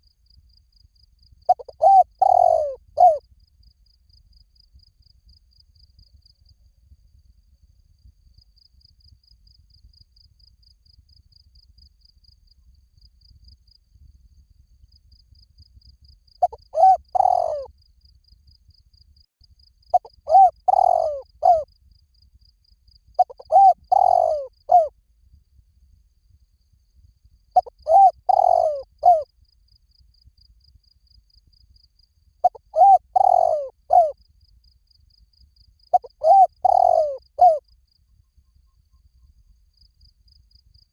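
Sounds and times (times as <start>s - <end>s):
faint insect chirping: 0.0s - 40.9s
dove cooing: 1.5s - 3.2s, 16.4s - 17.7s, 20.0s - 21.6s, 23.2s - 24.9s, 27.6s - 29.2s, 32.4s - 34.2s, 35.9s - 37.6s.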